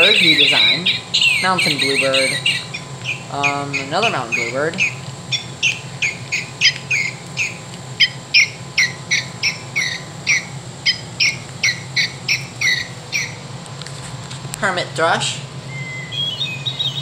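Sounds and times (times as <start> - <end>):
toy playing bird chirps: 0.0 - 13.4
steady low hum: 0.0 - 17.0.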